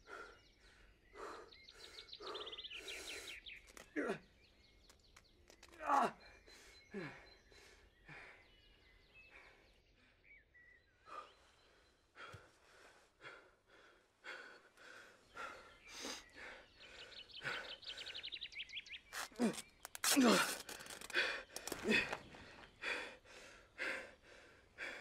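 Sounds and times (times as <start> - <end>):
man breathing and sighing: 0.0 - 4.2, 11.0 - 18.4, 19.2 - 25.0
faint bird chirps: 0.0 - 13.2, 14.3 - 24.1.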